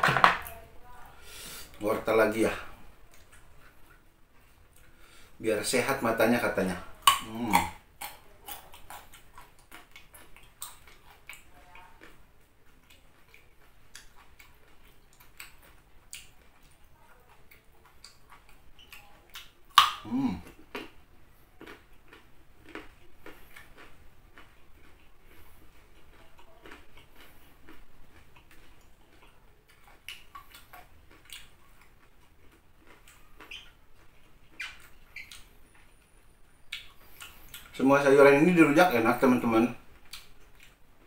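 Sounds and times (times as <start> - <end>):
raw carrot crunching: 6.6 - 12.2, 21.6 - 35.8
carrot snapping: 19.4 - 20.3.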